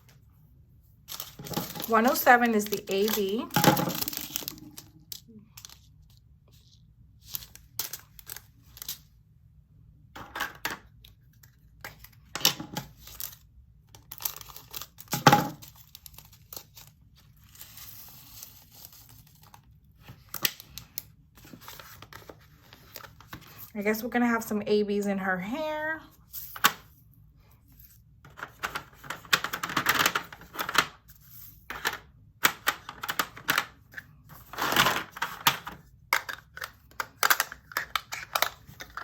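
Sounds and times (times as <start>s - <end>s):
plastic bags crinkling: 1.1s - 5.9s, 12.8s - 17.6s.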